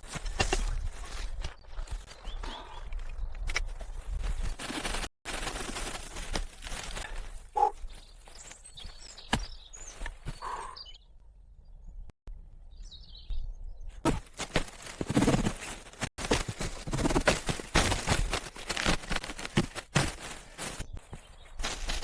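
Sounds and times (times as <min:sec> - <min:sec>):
rustling and crunching handling: 0:03.6 - 0:10.3, 0:14.1 - 0:22.0
bird chirp: 0:07.5 - 0:14.0.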